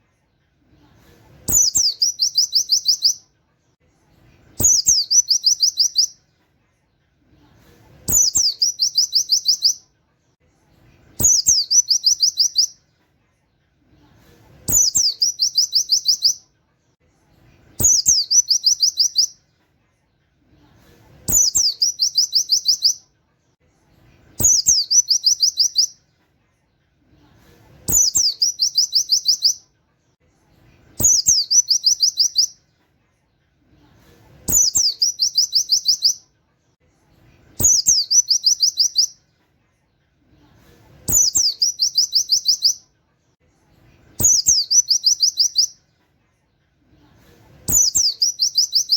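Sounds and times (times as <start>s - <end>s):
bird singing: 1.5s - 3.2s, 4.6s - 6.2s, 8.1s - 9.8s, 11.2s - 12.8s, 14.7s - 16.4s, 17.8s - 19.4s, 21.3s - 23.0s, 34.5s - 36.2s, 37.6s - 39.2s, 41.1s - 42.8s, 47.7s - 48.9s.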